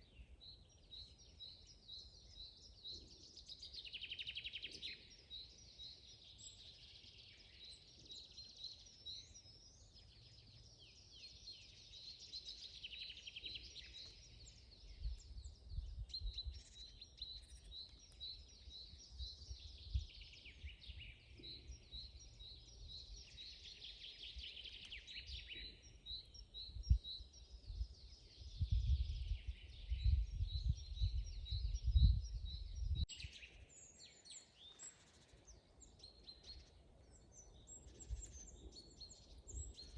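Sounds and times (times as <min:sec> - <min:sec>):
songbirds singing: 0:00.0 - 0:39.9
wind gusts on microphone: 0:14.8 - 0:16.7, 0:26.6 - 0:33.1.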